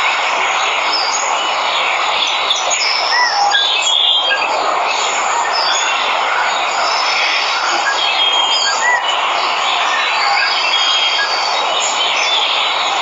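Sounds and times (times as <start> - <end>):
birds chirping and whistling: 6.8 - 9.2.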